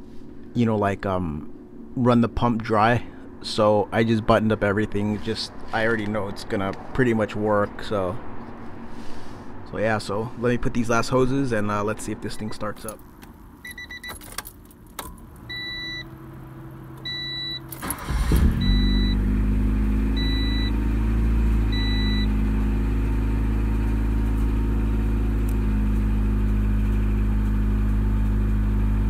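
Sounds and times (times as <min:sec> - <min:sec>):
car engine cranking and idling: 0:10.9 - 0:29.0
dashboard chime beeping: 0:17.1 - 0:17.7.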